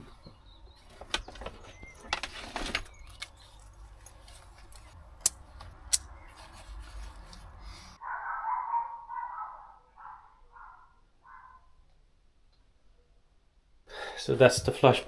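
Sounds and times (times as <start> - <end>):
small hard objects clattering: 0.0 - 7.6.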